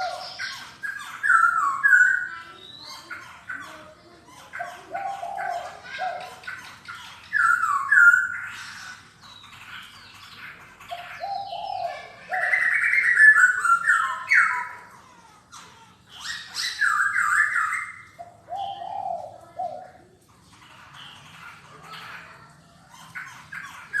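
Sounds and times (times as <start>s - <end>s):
bird singing whistled phrases: 0.0s - 2.8s, 7.4s - 8.4s, 12.4s - 14.7s, 16.3s - 19.3s.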